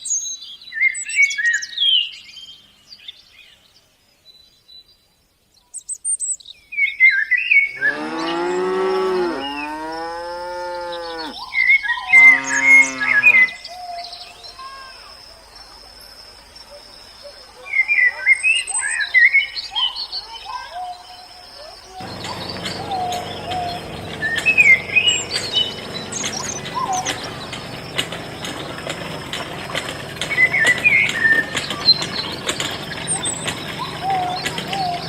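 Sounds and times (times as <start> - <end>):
birds chirping: 7.7 - 11.4, 12.1 - 13.6, 22.0 - 35.0
low hum with crackling ticks: 22.0 - 35.0.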